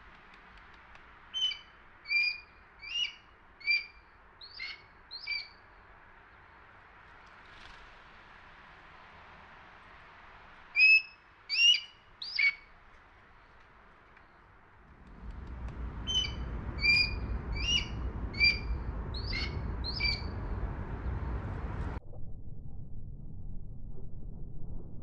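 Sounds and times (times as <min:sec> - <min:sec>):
high-pitched hawk calls: 0:01.3 - 0:05.6, 0:10.8 - 0:12.7, 0:16.0 - 0:20.5
low rumble: 0:14.8 - 0:25.0.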